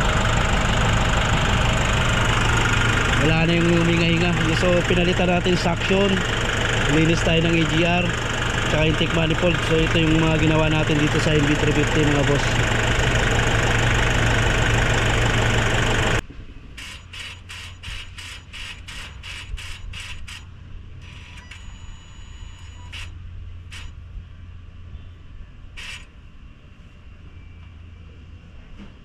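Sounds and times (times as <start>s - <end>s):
diesel engine idling: 0.0s - 16.2s.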